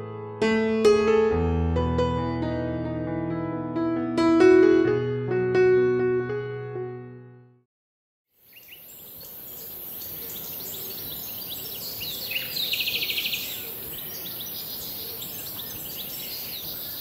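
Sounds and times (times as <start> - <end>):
bird trill: 8.4 - 17.0
birds chirping and calling: 8.5 - 17.0.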